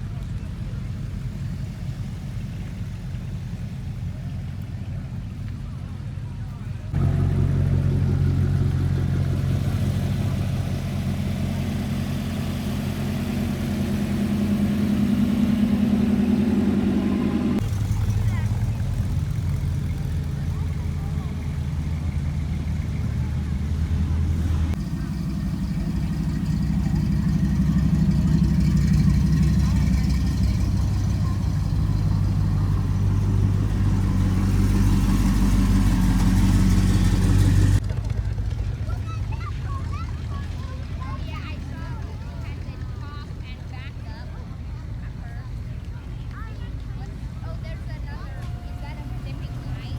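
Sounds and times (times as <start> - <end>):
car engine running: 0.0 - 49.9.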